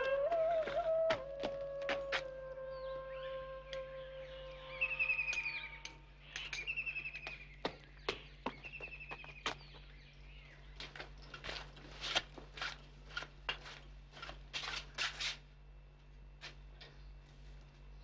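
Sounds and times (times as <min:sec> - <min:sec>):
scuffing footsteps: 0:00.0 - 0:02.4, 0:07.2 - 0:09.9
bird trilling: 0:04.2 - 0:07.6.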